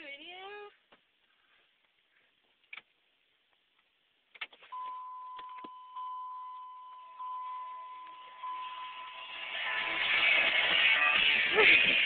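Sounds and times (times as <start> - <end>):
dashboard warning chime: 4.7 - 9.6.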